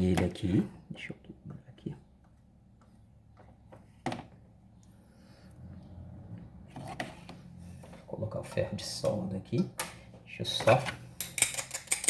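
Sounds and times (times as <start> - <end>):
small tools clicking: 11.2 - 12.0.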